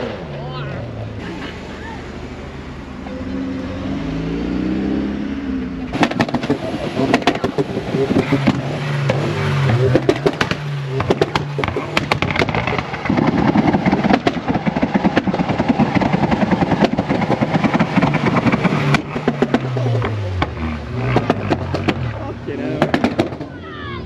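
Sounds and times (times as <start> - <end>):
car engine revving: 0.0 - 23.8
exhaust crackles and pops: 5.8 - 23.7.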